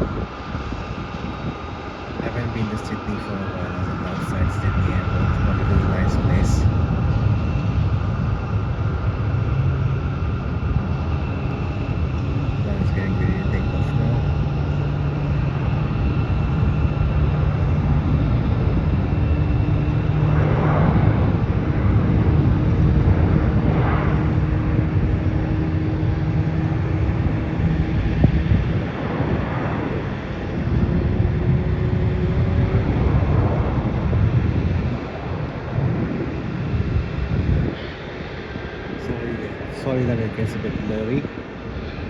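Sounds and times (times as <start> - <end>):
jet engines rumbling: 0.0 - 42.0.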